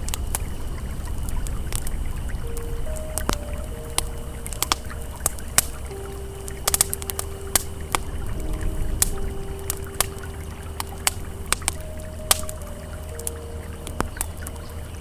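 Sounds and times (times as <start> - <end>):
campfire crackling: 0.0 - 15.0
soft ambient synth tones: 0.0 - 15.0.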